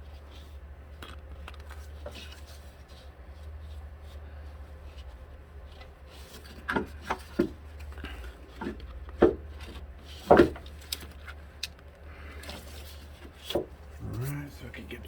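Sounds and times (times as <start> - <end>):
steady low hum: 13.7 - 15.0.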